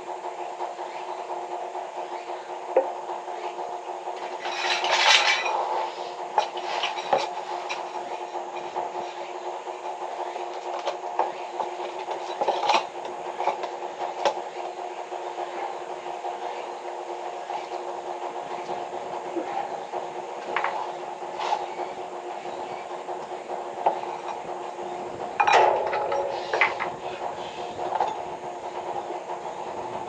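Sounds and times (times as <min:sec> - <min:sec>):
machine humming: 0:00.0 - 0:30.0
metal objects clinking and scraping: 0:04.2 - 0:08.8, 0:10.5 - 0:13.7, 0:25.4 - 0:28.3.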